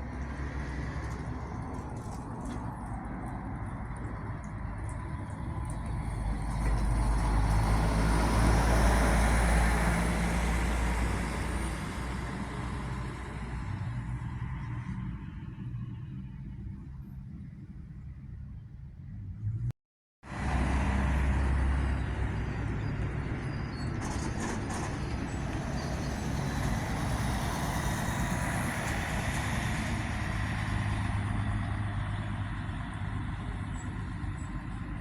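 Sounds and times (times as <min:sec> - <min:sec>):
diesel coach engine droning: 0:00.0 - 0:35.0.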